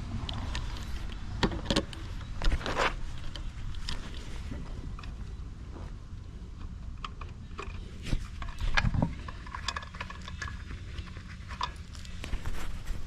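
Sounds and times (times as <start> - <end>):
hand tools and metal parts clicking: 6.6 - 13.0.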